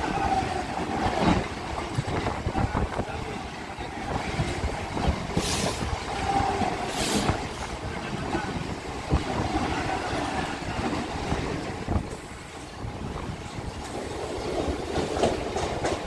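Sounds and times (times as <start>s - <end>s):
train rumbling past: 0.0s - 16.0s
wheels clattering on rail joints: 0.0s - 16.0s
brief hisses: 6.9s - 7.4s.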